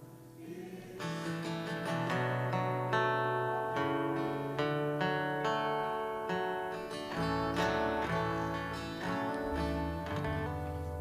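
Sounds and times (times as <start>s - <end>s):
acoustic guitar strumming chords: 0.0s - 11.0s
bass line: 7.2s - 11.0s.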